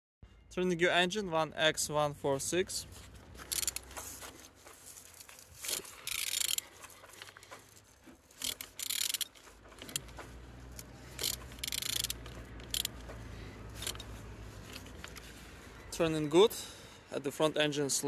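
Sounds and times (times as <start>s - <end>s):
engine ratcheting as turned by hand: 3.4s - 4.2s, 5.1s - 15.3s.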